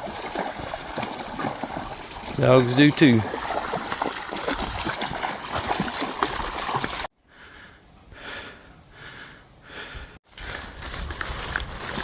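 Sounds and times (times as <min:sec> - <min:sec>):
creek water noise: 0:00.0 - 0:07.1
person breathing hard: 0:07.2 - 0:10.8.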